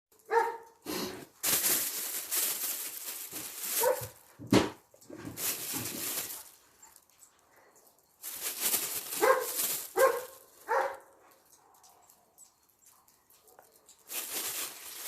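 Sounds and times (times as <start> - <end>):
rustling noise: 0.2 - 7.3, 8.2 - 11.5, 14.0 - 15.0
dog yelping: 0.3 - 0.7, 3.8 - 4.1, 9.2 - 11.0.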